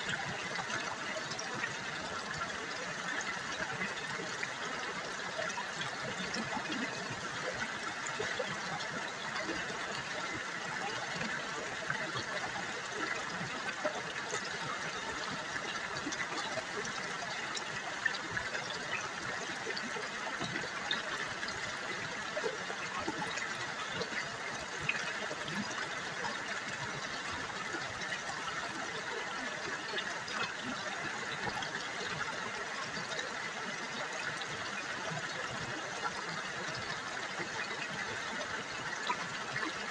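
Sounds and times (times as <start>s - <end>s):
river water babbling over stones: 0.0s - 39.9s.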